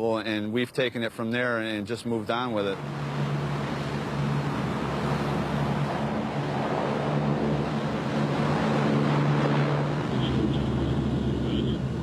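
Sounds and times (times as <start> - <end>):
hovercraft turbines humming: 1.9 - 12.0
dense rushing noise: 2.6 - 12.0.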